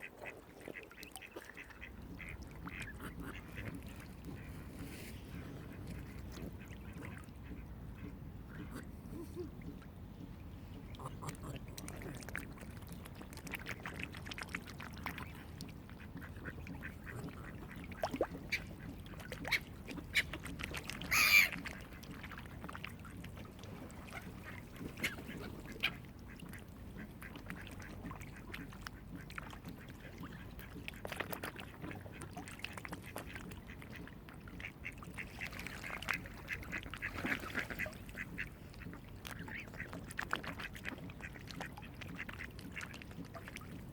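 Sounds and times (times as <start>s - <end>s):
waterfowl calling: 21.0s - 22.2s.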